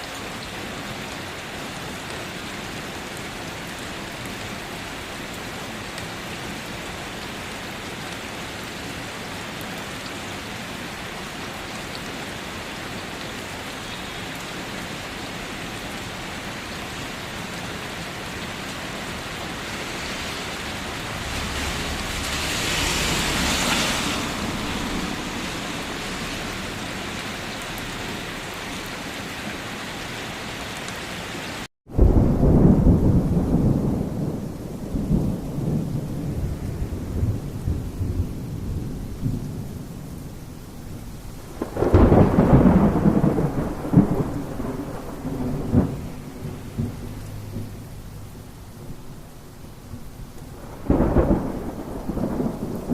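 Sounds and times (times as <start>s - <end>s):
heavy rain falling: 0.0s - 52.9s
low rumble of thunder: 20.0s - 27.0s, 31.9s - 52.9s.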